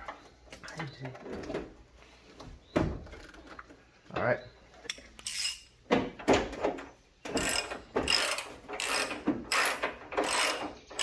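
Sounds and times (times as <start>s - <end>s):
hand ratchet wrench clicking: 5.2s - 5.7s, 7.4s - 11.0s.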